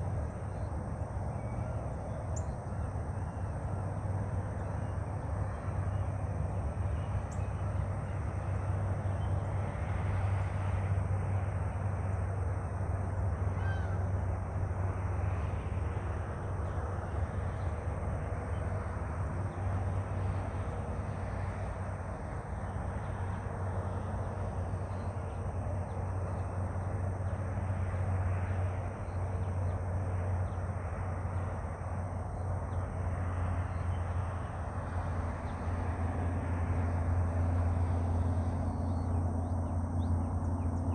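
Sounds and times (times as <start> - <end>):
faint bird calls: 13.5 - 14.1.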